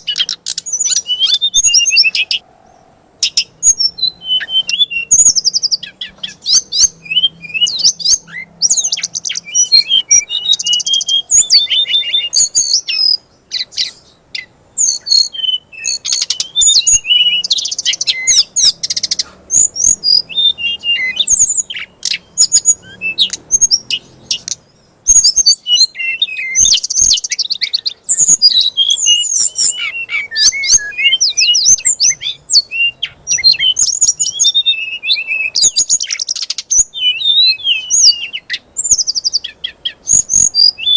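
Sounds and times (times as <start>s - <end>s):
songbird singing rapid trills: 0.0s - 40.9s.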